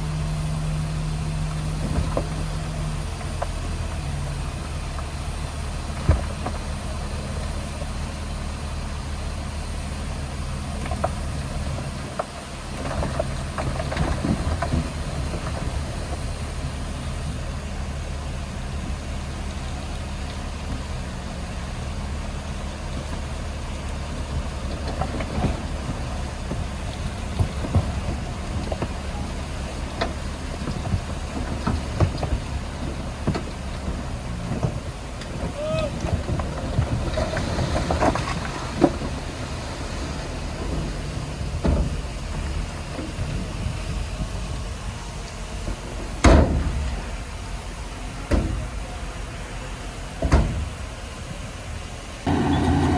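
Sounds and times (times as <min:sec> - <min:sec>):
bulldozer diesel engine running: 0:00.0 - 0:52.9
metal clanks and knocks: 0:52.3 - 0:52.9.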